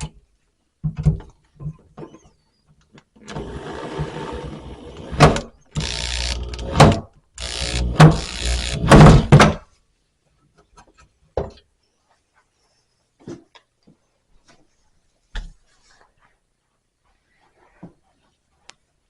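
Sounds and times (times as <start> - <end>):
screw being driven: 3.2 - 9.4.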